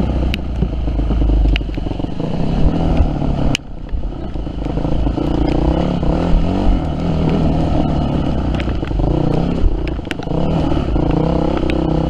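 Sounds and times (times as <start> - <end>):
motorcycle engine revving: 0.0 - 12.0
sharp clicks: 8.5 - 10.4.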